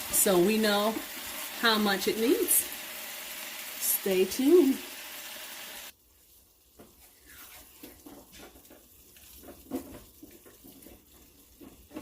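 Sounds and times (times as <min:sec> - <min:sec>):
chicken sizzling in a pot: 0:00.0 - 0:12.0
spoon stirring in a pot: 0:06.8 - 0:12.0.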